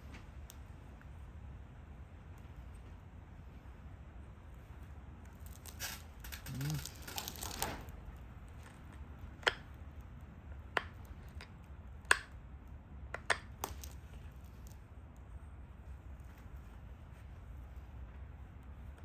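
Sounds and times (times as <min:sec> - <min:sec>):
stone flakes clicking off: 0:05.3 - 0:07.8, 0:13.2 - 0:14.8.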